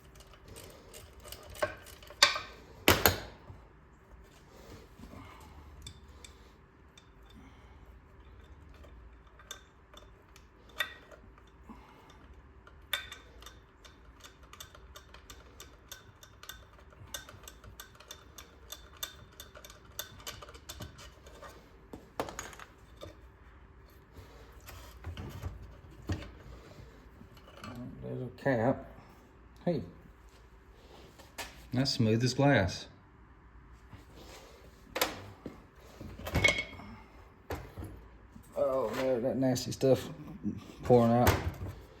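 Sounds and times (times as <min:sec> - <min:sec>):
tools and metal parts clinking: 0:00.0 - 0:03.4, 0:05.3 - 0:23.2, 0:24.6 - 0:27.9, 0:36.0 - 0:37.0.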